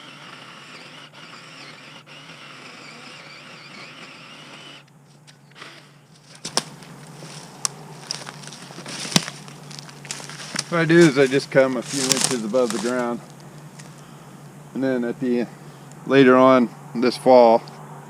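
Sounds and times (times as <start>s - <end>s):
faint steady whir: 0.0s - 17.8s
twigs snapping and crackling: 6.2s - 14.0s.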